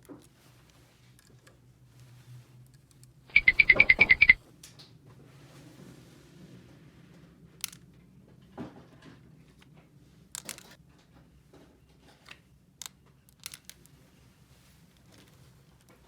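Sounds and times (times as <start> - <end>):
faint steady hum: 3.3 - 4.4
plastic toy pieces clicking: 12.8 - 13.8.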